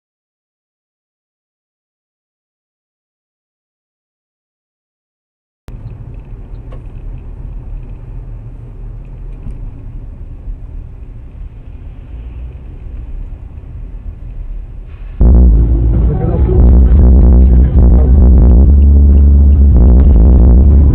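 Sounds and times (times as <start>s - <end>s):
car engine and road rumble: 5.7s - 20.9s.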